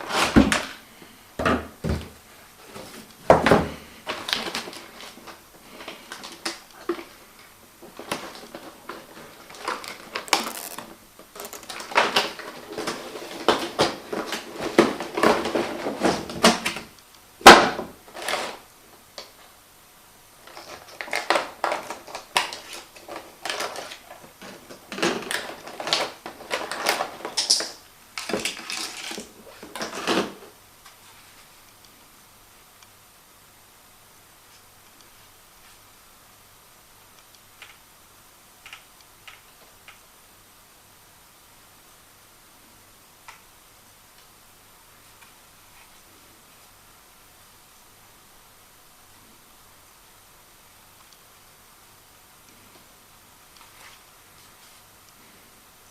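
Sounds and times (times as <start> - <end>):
rustling: 1.9 - 17.0, 52.5 - 55.5
unpacking handling noises: 2.6 - 18.6, 20.4 - 30.6.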